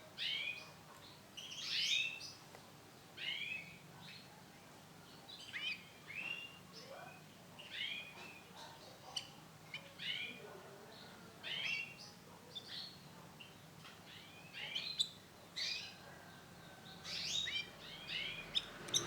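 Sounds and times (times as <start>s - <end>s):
canary chirping calls: 11.4s - 19.0s.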